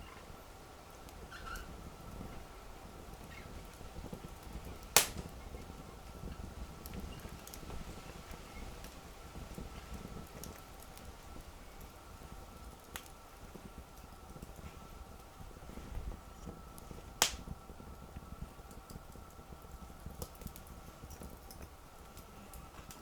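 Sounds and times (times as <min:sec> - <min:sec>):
wood fire rumbling and crackling: 0:00.0 - 0:23.0
loud pop from burning wood: 0:04.9 - 0:05.5, 0:17.2 - 0:17.6.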